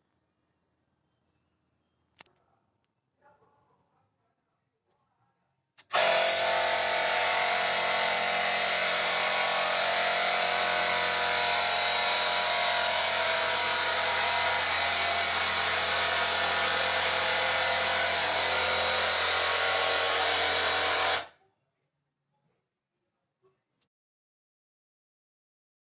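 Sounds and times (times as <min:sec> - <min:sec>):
mini air compressor running: 0:05.8 - 0:21.3.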